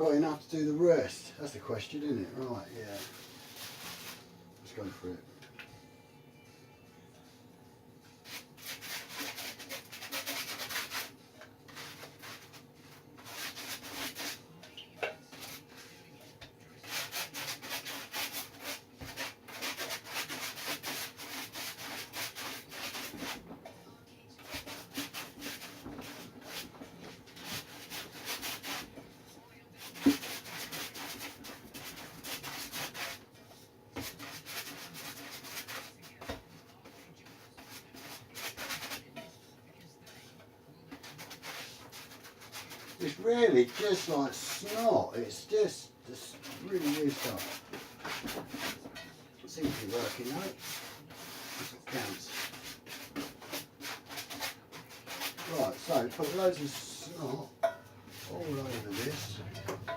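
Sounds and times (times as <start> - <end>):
rubbing strokes on surfboard: 46.2 - 48.8, 49.6 - 57.4.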